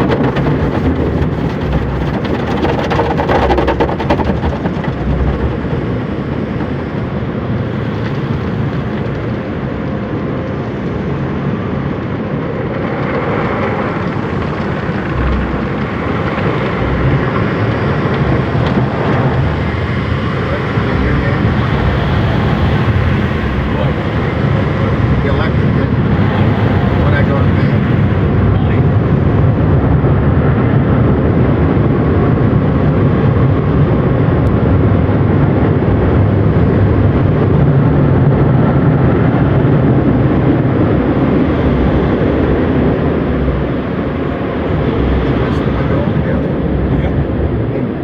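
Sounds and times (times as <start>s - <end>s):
car wash machinery rumble: 0.0s - 48.0s
water spray rushing: 25.9s - 28.3s.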